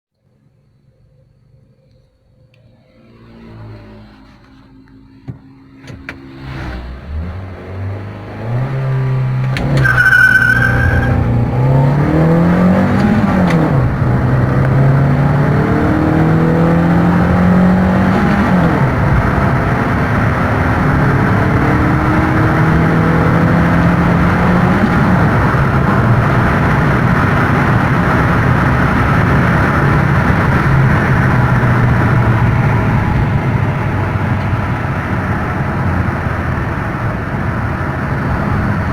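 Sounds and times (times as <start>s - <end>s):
car engine accelerating: 2.0s - 38.9s
road and wind noise: 2.3s - 38.9s
tyre squeal: 9.3s - 11.9s.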